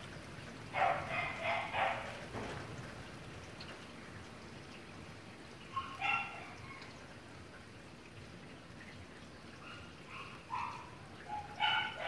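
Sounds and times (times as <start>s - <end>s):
rain falling and dripping: 0.0s - 12.0s
dog barking: 0.8s - 2.2s, 5.8s - 6.5s, 9.8s - 12.0s.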